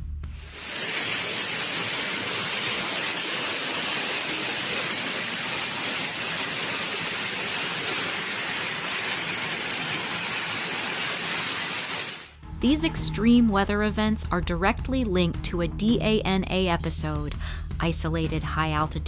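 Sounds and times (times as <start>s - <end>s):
heavy rain: 0.4s - 12.4s.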